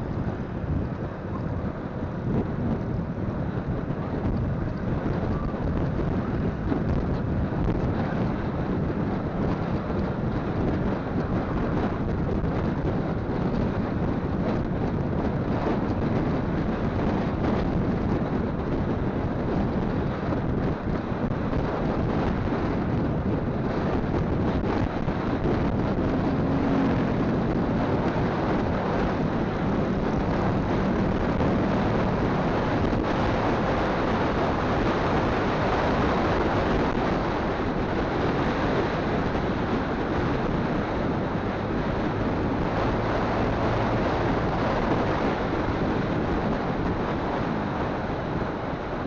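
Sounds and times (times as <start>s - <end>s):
faint motorcycle engine hum: 0.0s - 49.0s
wind buffeting microphone: 0.0s - 49.0s.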